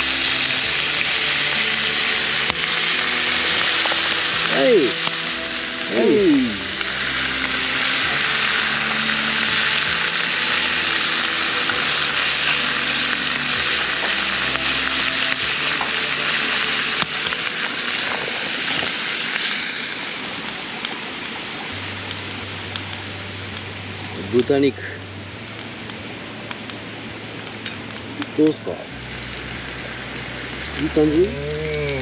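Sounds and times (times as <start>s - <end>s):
meat sizzling in a skillet: 0.0s - 32.0s.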